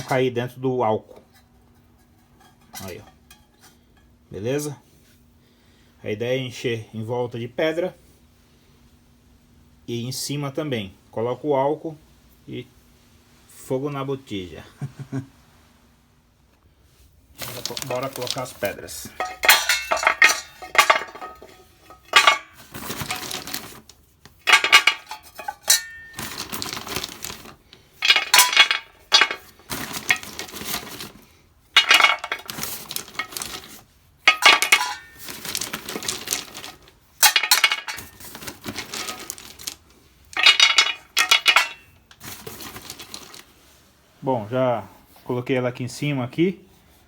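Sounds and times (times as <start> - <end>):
stones clattering against metal: 17.4 - 31.2, 31.8 - 33.7, 34.3 - 39.8, 40.4 - 43.4.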